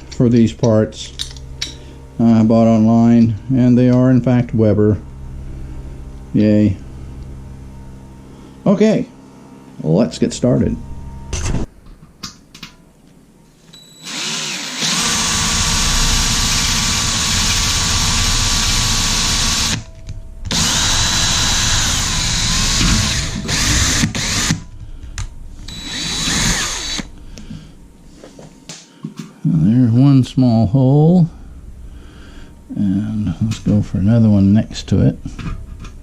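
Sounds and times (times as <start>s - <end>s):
electric drill boring into metal: 14.0s - 19.9s, 20.5s - 24.6s, 25.6s - 27.1s.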